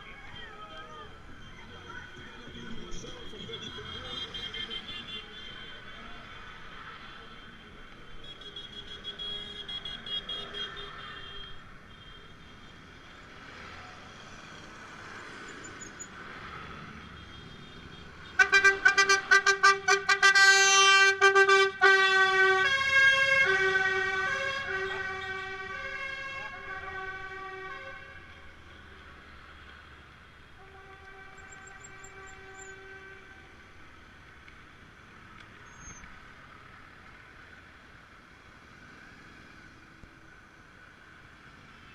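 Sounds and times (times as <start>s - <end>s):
low traffic rumble: 0.0s - 41.9s
tractor horns honking: 17.3s - 28.4s, 30.6s - 33.5s.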